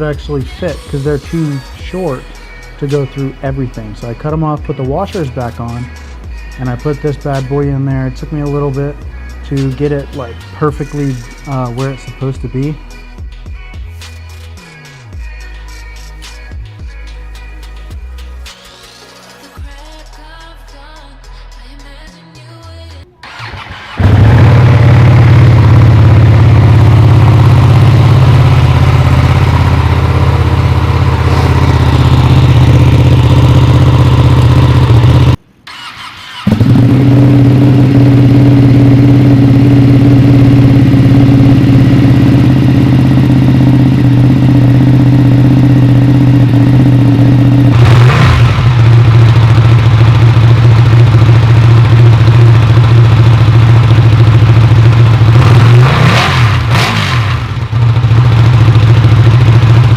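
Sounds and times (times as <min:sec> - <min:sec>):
motorcycle engine running: 0:00.0 - 0:12.8, 0:23.2 - 0:59.9
motorcycle engine revving: 0:23.2 - 0:59.9.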